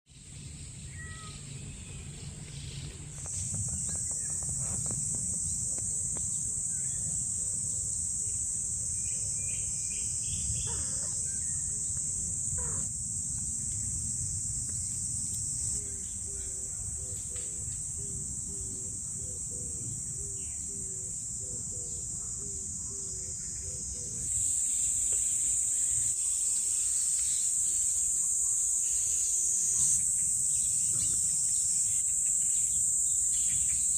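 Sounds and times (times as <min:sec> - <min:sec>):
insects droning: 0:00.1 - 0:33.9
bird chirps: 0:00.4 - 0:04.9.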